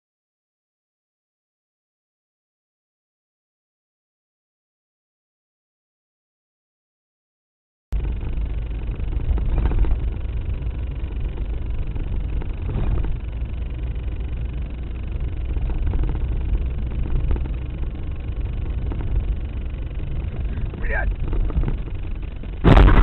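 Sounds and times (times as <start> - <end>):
car engine and road noise: 8.0 - 23.0.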